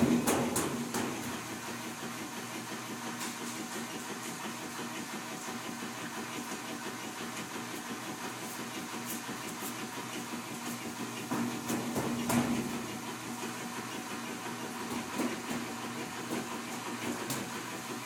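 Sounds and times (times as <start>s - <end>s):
washing machine running: 0.0s - 18.0s.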